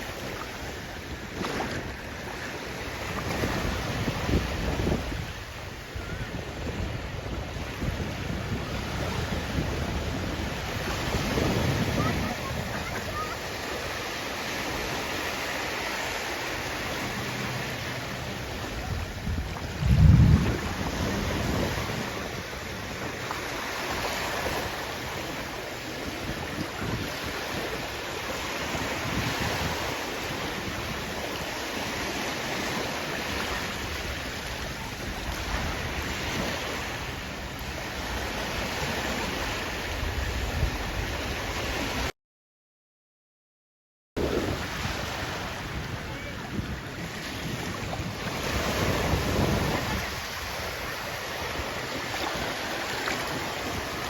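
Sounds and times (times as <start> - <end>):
sea waves washing ashore: 0.0 - 42.1, 44.2 - 54.0
wind buffeting microphone: 0.3 - 14.1, 16.8 - 42.1, 44.2 - 54.0.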